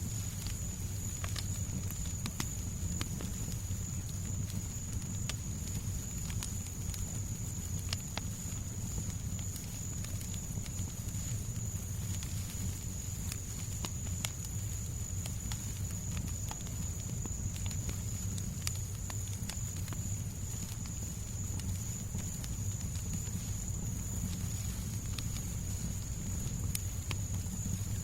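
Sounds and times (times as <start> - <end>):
fireplace crackling and popping: 0.0 - 28.0.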